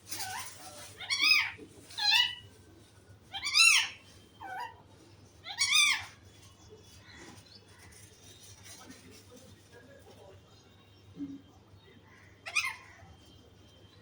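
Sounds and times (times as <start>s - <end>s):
parrot calling: 0.1s - 2.4s, 3.3s - 4.8s, 5.4s - 6.2s, 12.4s - 12.9s.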